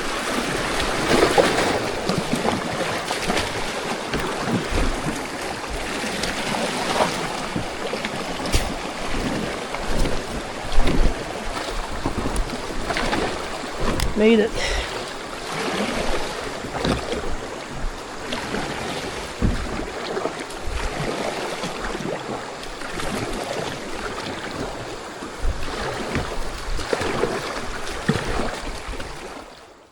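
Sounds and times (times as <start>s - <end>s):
creek water rushing: 0.0s - 29.6s
knocks against boat: 0.8s - 14.8s, 16.0s - 20.9s, 25.3s - 28.5s.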